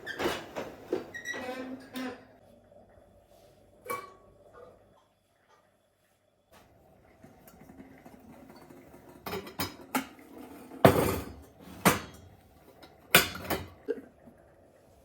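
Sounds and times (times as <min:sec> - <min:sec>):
dishes and cutlery clattering: 0:08.4 - 0:14.0.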